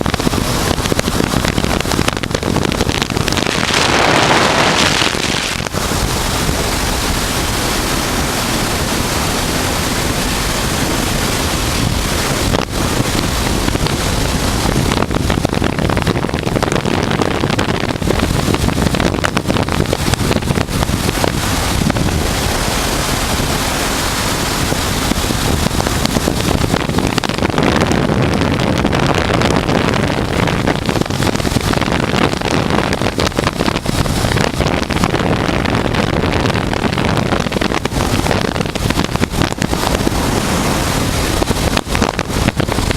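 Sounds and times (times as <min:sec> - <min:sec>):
motorcycle engine running: 0:00.0 - 0:42.9
wind rushing over microphone: 0:00.0 - 0:42.9.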